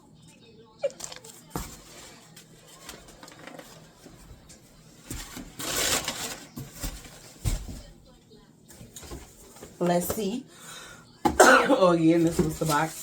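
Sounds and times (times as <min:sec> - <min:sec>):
packaging clicks and rustling: 0:01.0 - 0:04.1
packaging ripping: 0:05.4 - 0:07.1.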